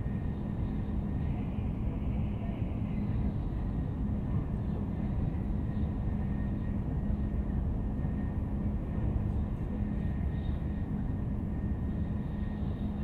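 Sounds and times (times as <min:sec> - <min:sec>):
constant low hum: 0:00.0 - 0:13.0
train rumbling at speed: 0:00.0 - 0:13.0.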